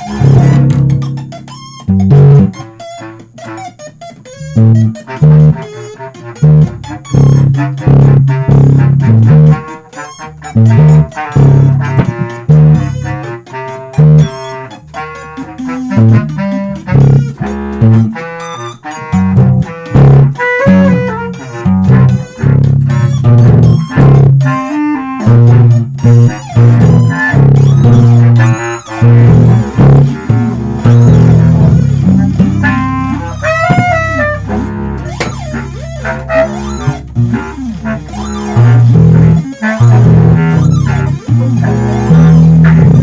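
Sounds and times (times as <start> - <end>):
plucked guitar notes: 0.0 - 43.0
short low bass notes: 29.2 - 43.0.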